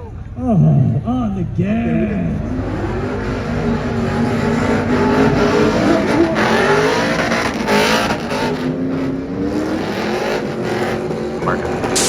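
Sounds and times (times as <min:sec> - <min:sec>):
truck engines revving: 0:00.1 - 0:12.0
spinning tyres squealing: 0:01.7 - 0:12.0.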